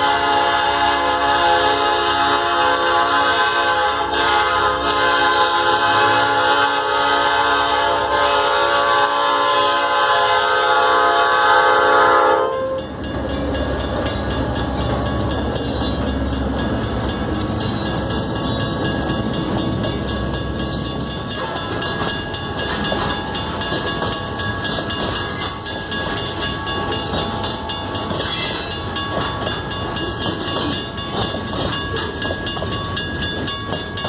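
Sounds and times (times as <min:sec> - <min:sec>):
locomotive air horn: 0:00.0 - 0:12.8
crossing bells ringing: 0:00.0 - 0:34.0
freight train rumbling: 0:00.0 - 0:34.0.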